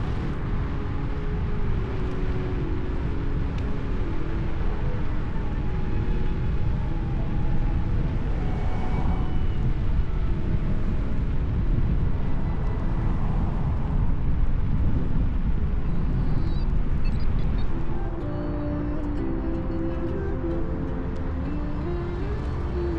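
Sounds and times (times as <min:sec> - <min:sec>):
faint steady tones: 0:00.0 - 0:22.9
wind buffeting microphone: 0:00.0 - 0:22.9.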